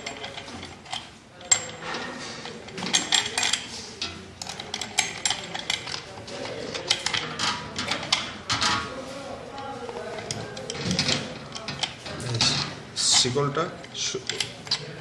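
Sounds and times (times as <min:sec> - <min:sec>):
metal chain clicking and clinking: 0:00.0 - 0:08.8.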